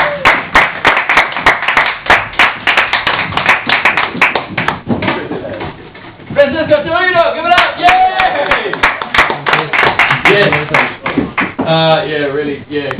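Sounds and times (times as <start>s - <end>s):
audience applauding: 0.0s - 4.9s, 7.4s - 11.6s.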